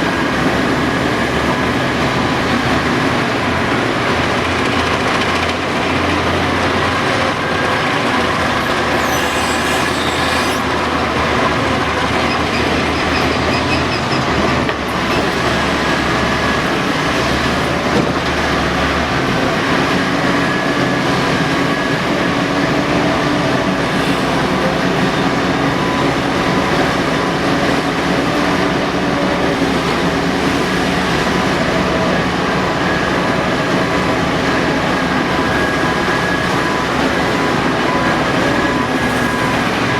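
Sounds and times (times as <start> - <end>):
excavator engine and hydraulics: 0.0 - 39.9
brief high squeal: 8.6 - 10.7, 12.2 - 14.3.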